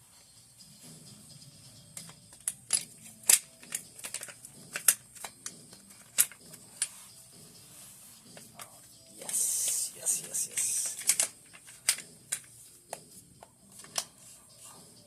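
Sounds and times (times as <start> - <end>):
metallic clicks of rifle parts: 2.0 - 6.9, 10.4 - 12.5.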